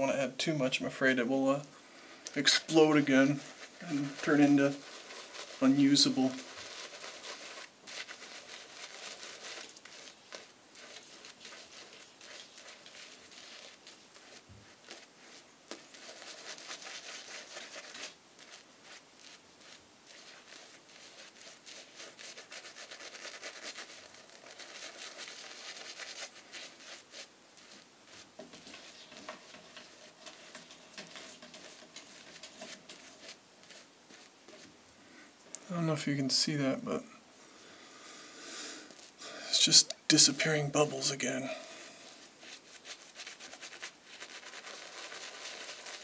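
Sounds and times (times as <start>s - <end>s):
shaving brush lathering soap: 2.3s - 34.7s, 42.4s - 46.0s.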